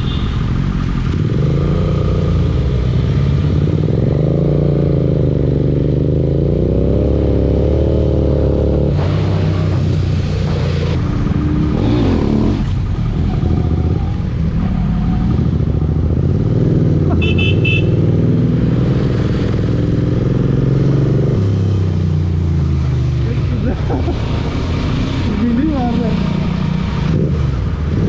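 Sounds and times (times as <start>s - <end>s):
motorcycle engine revving: 0.0s - 28.0s
vehicle horn toots: 17.1s - 18.1s.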